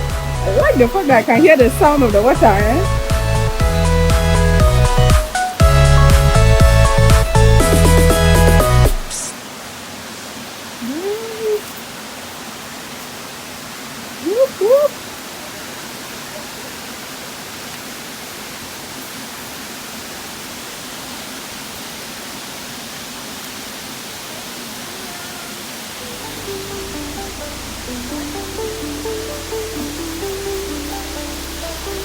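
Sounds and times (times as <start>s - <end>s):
waterfall rushing: 0.5s - 3.6s, 4.8s - 32.0s
short rising calls: 10.8s - 11.6s, 14.2s - 15.0s.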